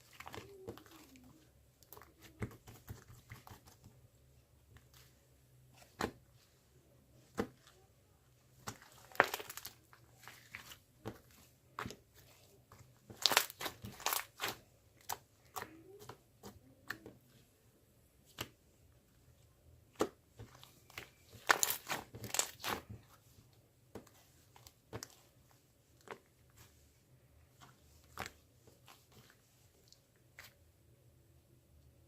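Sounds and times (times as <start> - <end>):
close crinkling and crackling: 0.0 - 4.0, 8.5 - 17.2, 20.3 - 23.3.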